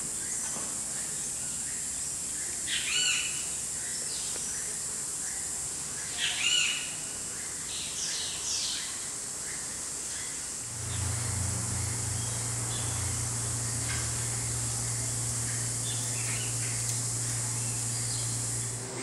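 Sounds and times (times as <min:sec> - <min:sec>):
high insect buzz: 0:09.5 - 0:19.0.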